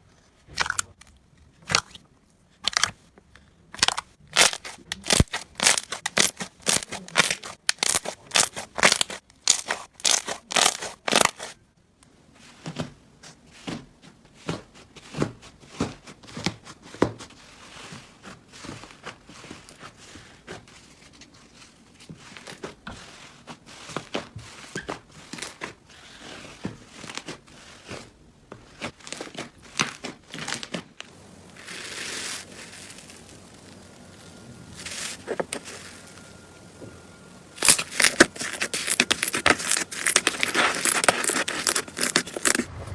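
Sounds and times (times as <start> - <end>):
slime crackling and popping: 3.8 - 11.5, 28.8 - 36.3, 37.6 - 42.7.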